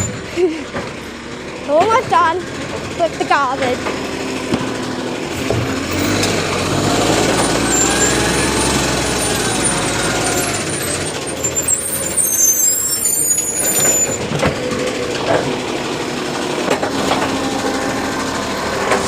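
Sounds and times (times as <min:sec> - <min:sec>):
truck engine rumble: 0:00.0 - 0:19.0
high squeals: 0:05.9 - 0:14.4.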